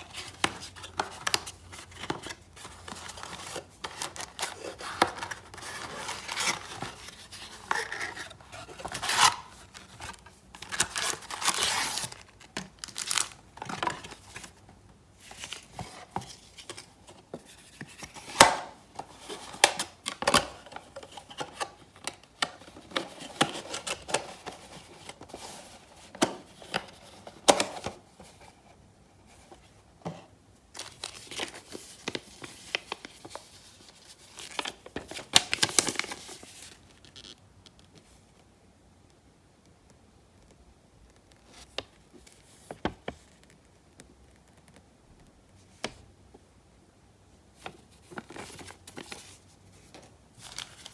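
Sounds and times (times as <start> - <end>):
packaging torn and crinkled: 8.7 - 13.4.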